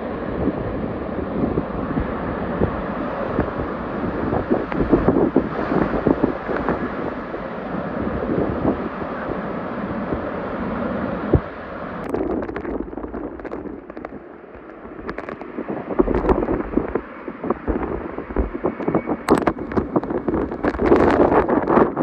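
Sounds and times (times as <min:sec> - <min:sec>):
strong wind buffeting microphone: 0:00.0 - 0:22.0.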